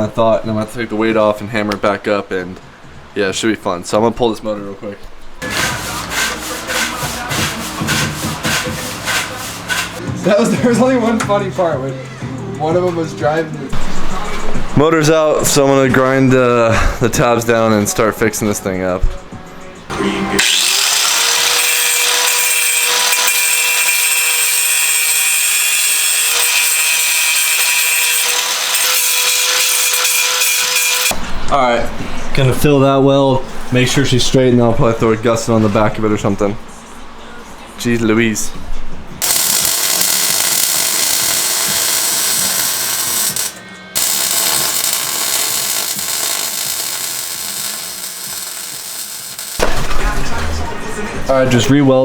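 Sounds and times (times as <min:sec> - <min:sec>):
angle grinder grinding steel: 0:05.4 - 0:10.0, 0:19.9 - 0:31.2, 0:39.2 - 0:49.6
welding arc crackling: 0:20.4 - 0:31.2, 0:39.2 - 0:49.8.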